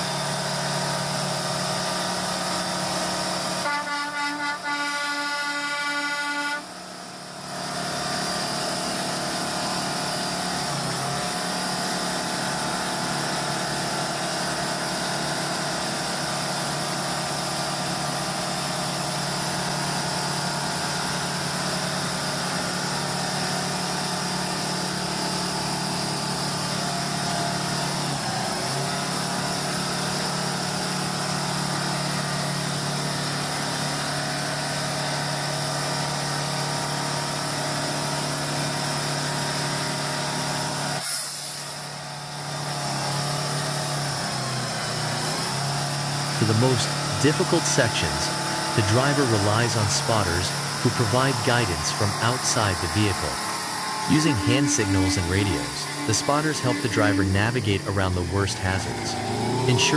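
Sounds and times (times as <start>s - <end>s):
truck engine running: 0.0s - 4.1s, 6.8s - 59.9s
horn short toots: 3.6s - 6.7s, 54.0s - 59.9s.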